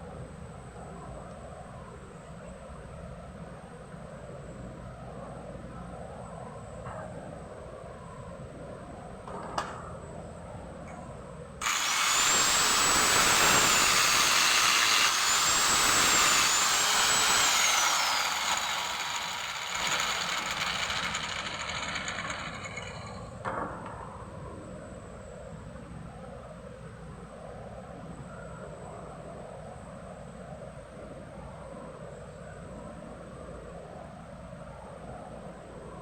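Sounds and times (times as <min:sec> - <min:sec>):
power drill whining: 0:11.6 - 0:23.3.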